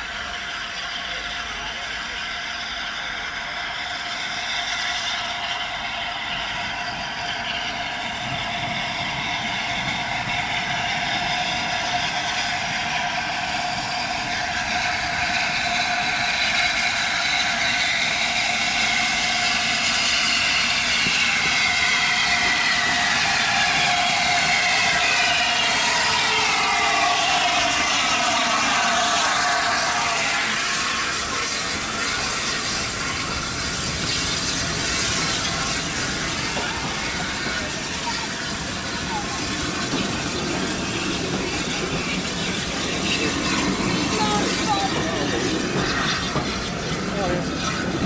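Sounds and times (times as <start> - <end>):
steam train rolling rumble: 0.0 - 48.0.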